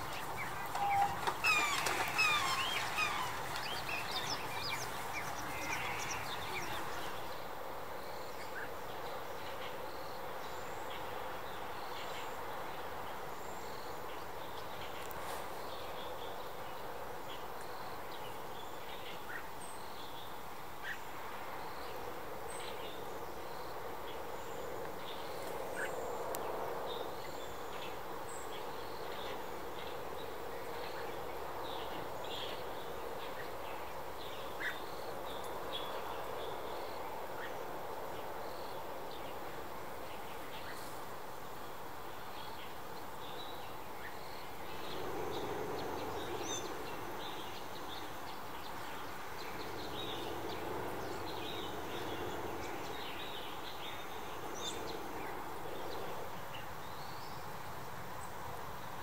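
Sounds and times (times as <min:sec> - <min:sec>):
bird chirps: 0:00.0 - 0:07.3
steady background hum: 0:00.0 - 0:07.8, 0:43.2 - 0:58.8.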